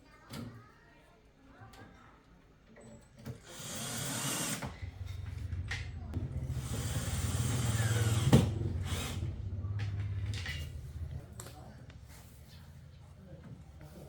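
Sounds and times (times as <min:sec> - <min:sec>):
small electric motor humming: 0:03.5 - 0:10.2.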